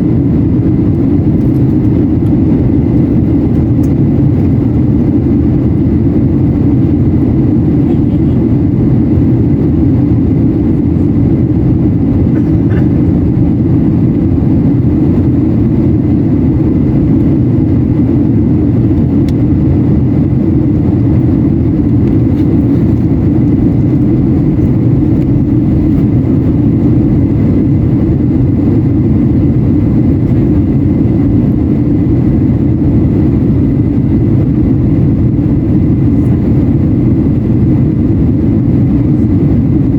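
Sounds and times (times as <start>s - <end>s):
rumble of engines and airflow: 0.0s - 39.9s.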